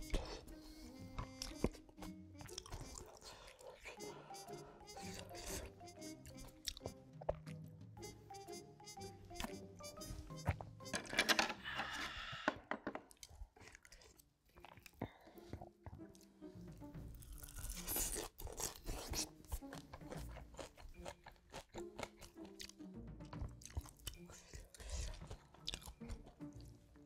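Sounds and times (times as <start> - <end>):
crunchy bites and chewing: 1.3 - 4.0, 17.2 - 26.7.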